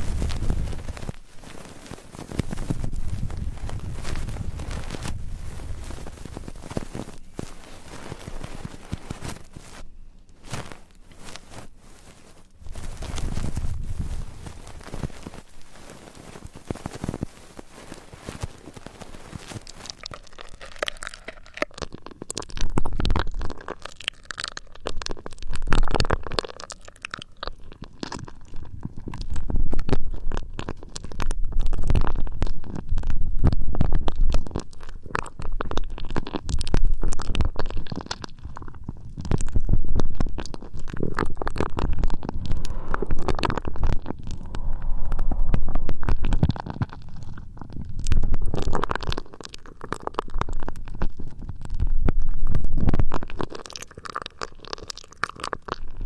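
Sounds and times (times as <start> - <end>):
hands rubbing microphone: 0.0 - 20.1, 41.2 - 47.4.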